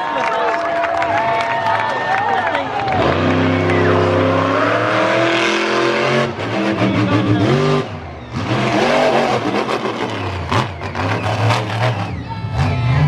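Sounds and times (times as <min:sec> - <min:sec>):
monster truck engine revving: 0:02.6 - 0:13.0.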